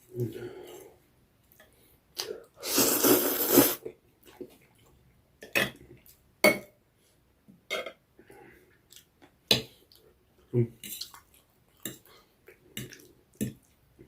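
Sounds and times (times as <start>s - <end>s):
slurping noodles: 2.6s - 3.8s.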